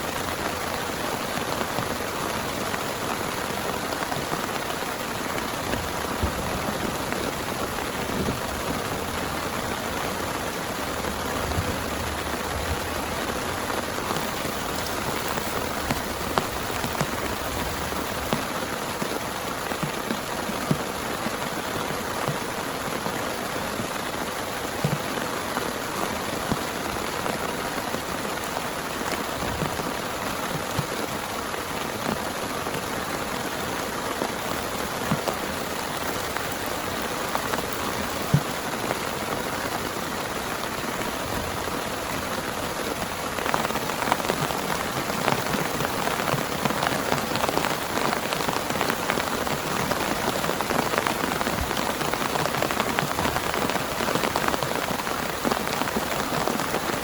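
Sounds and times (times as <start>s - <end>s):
heavy rain falling: 0.0s - 57.0s
raindrops ticking on a surface: 0.0s - 57.0s.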